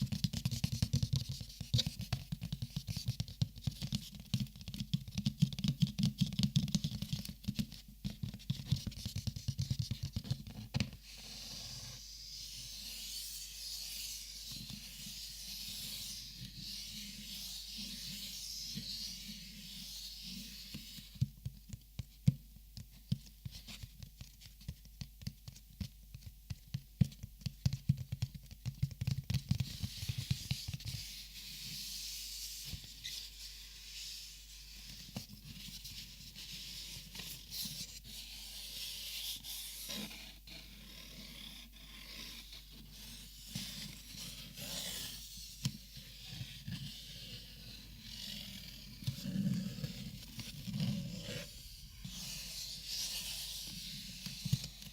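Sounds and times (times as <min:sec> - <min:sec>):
plastic markers tapping and clicking: 0:00.0 - 0:10.9, 0:21.2 - 0:30.9.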